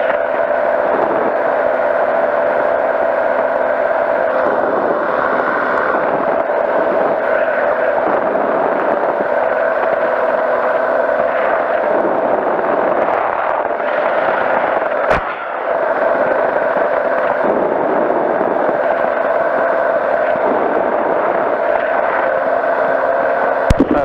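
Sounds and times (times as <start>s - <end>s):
engine and propeller running: 0.0s - 24.0s
sharp click: 15.1s - 15.4s.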